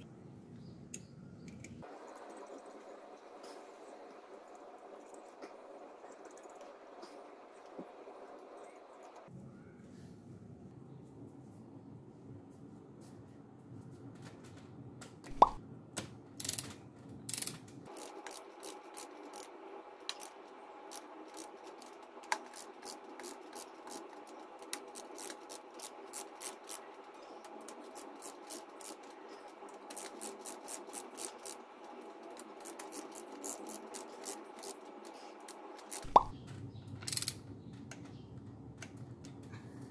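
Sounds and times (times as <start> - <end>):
ratchet wrench clicking: 16.4 - 16.7, 17.3 - 19.5, 24.7 - 26.8, 29.9 - 31.6, 32.6 - 34.8, 37.1 - 37.4.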